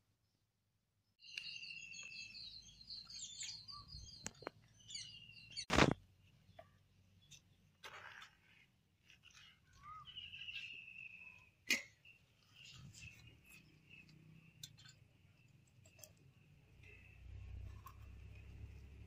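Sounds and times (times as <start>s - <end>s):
faint bird chirping: 1.2s - 7.6s, 9.1s - 18.1s.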